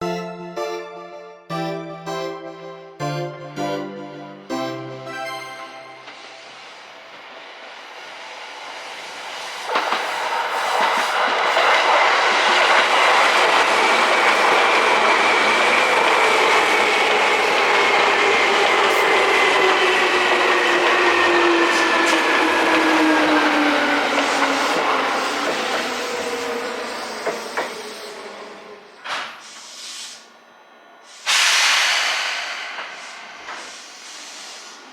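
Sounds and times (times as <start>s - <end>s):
train wheels clacking over rail joints: 9.6s - 14.7s.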